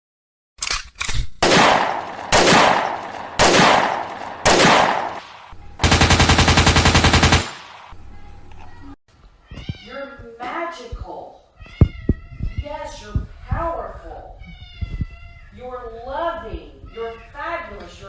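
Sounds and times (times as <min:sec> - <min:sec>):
rapid automatic gunfire: 0:01.4 - 0:05.2, 0:05.8 - 0:07.9
quick gunfire cracks: 0:01.4 - 0:07.9
gunshots with echo: 0:01.4 - 0:08.0.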